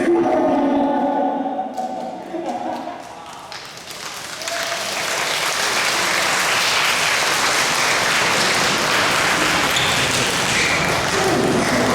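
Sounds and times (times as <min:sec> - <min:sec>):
crowd applauding: 0:03.0 - 0:11.9.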